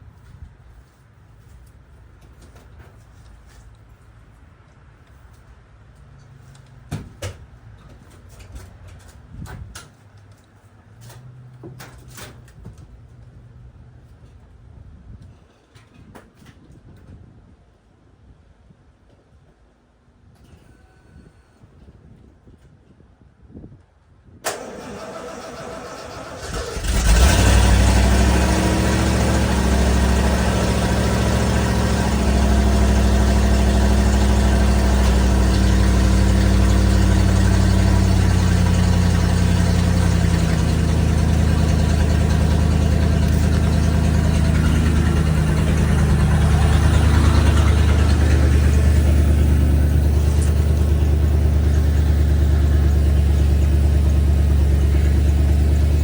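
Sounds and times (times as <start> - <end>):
engine cranking and idling: 24.4 - 56.0.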